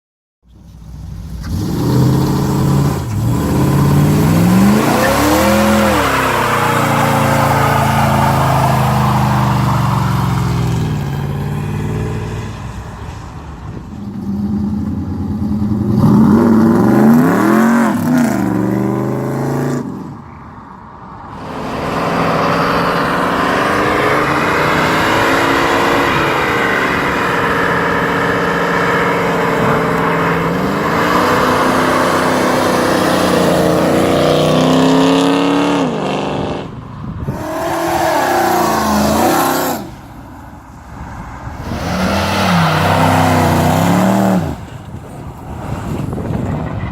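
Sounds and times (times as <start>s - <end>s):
car engine revving: 1.1s - 12.7s, 21.3s - 40.2s, 41.5s - 44.8s.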